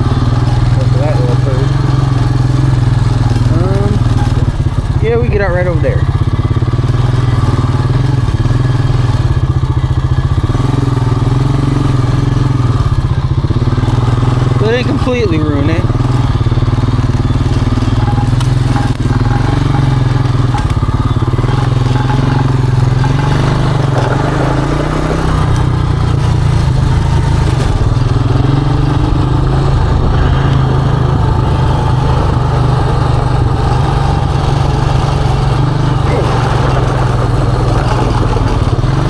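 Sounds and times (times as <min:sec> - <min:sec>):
atv engine running: 0:00.0 - 0:39.0.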